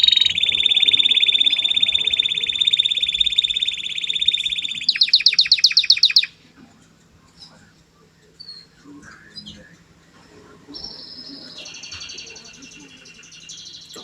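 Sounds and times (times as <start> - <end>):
canary singing: 0.0 - 6.4, 10.4 - 14.0
faint chirps: 0.0 - 6.4, 7.2 - 14.0.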